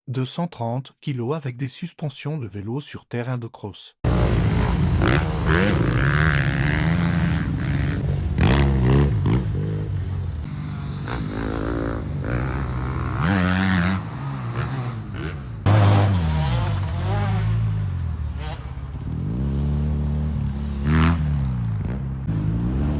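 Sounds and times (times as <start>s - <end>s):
motorcycle engine revving: 4.1s - 22.9s.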